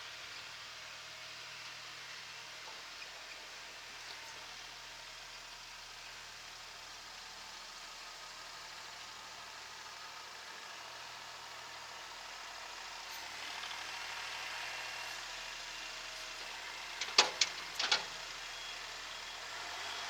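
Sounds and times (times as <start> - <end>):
tractor diesel engine running: 4.8 - 20.0.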